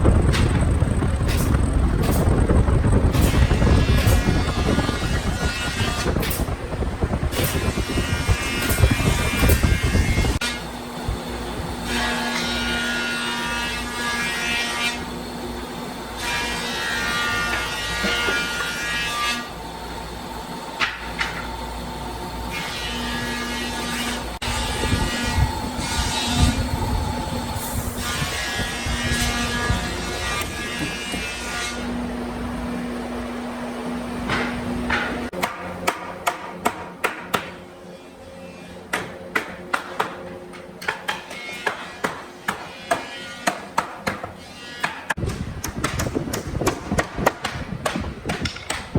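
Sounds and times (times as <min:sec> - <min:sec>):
machine hum: 0:00.0 - 0:37.0.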